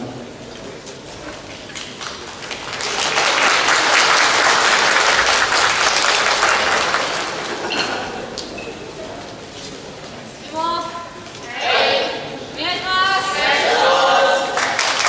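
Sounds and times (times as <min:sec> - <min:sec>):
audience applauding: 0:01.7 - 0:07.7, 0:14.6 - 0:15.0.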